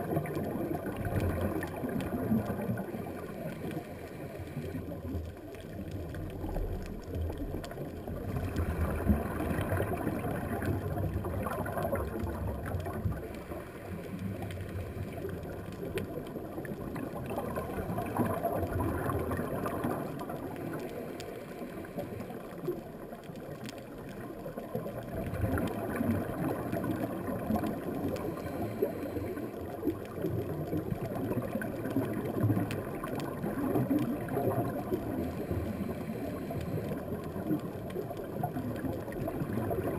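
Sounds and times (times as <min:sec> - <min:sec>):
faint clicks: 0:00.0 - 0:39.9
underwater bubbling of exhaled air: 0:00.0 - 0:39.9.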